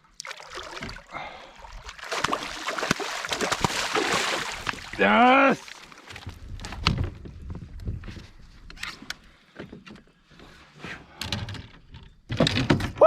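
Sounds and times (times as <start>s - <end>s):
knocks bumps and clatter: 11.3s - 13.0s.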